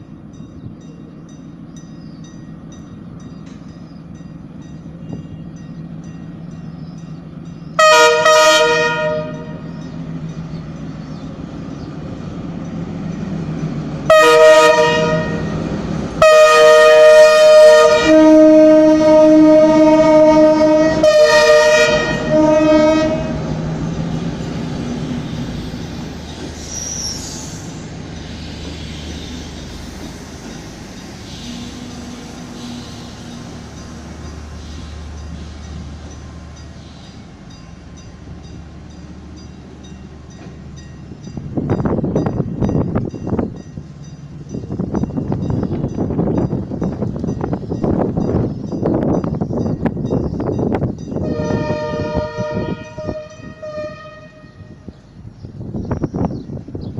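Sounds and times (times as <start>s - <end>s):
locomotive engine drone: 0.0s - 56.7s
idling train rumble: 0.0s - 56.9s
locomotive air horn blasts: 7.8s - 9.7s, 14.1s - 15.6s, 16.2s - 23.5s, 51.2s - 54.9s.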